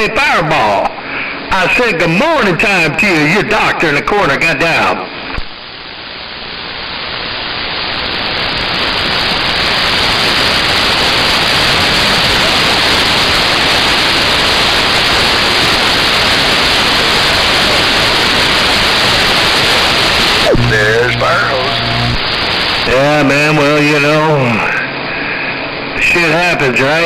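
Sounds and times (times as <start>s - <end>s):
radio static hiss: 7.9s - 27.0s.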